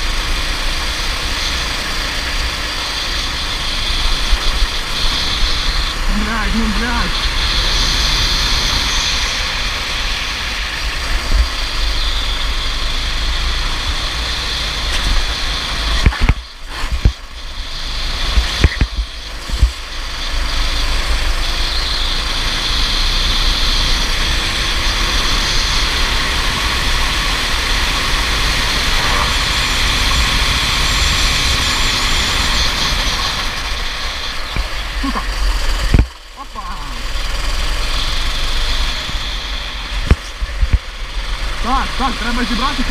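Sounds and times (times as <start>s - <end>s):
go-kart engine: 0.0s - 42.9s
wind noise on microphone: 7.1s - 36.2s, 37.0s - 41.6s.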